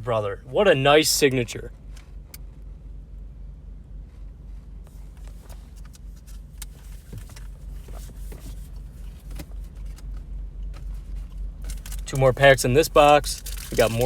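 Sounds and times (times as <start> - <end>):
car engine idling: 0.0 - 14.0
trading cards and wrappers rustling: 5.1 - 14.0.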